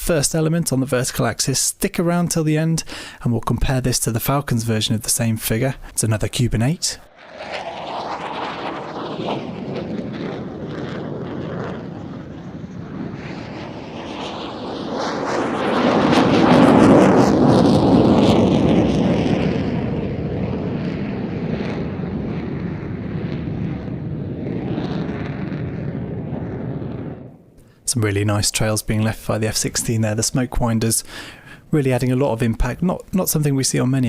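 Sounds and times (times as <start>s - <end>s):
fighter jet roaring past: 7.0s - 27.8s.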